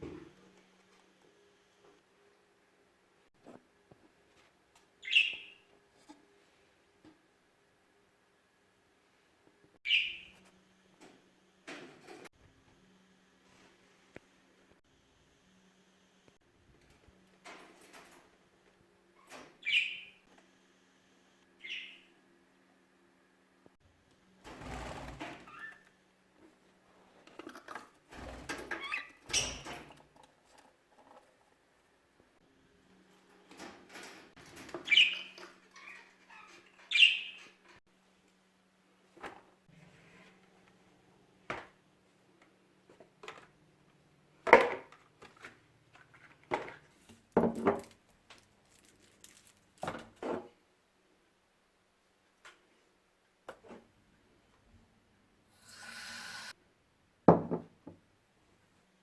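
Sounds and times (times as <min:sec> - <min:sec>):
budgerigars chirping: 0:21.6 - 0:22.0, 0:36.9 - 0:37.4
knocks and clatters of objects: 0:44.4 - 0:50.6, 0:57.3 - 0:58.0
rustling: 0:47.8 - 0:49.9.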